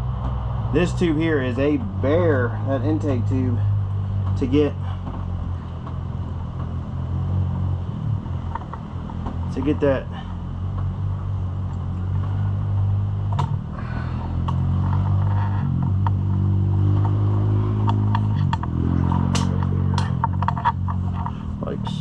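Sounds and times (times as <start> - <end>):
clicks and knocks of parts: 8.4 - 9.4, 17.8 - 21.5.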